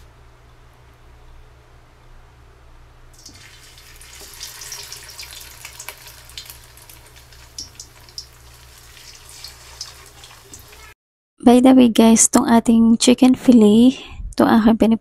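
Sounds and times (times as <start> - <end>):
chicken frying in hot oil: 3.2 - 11.0.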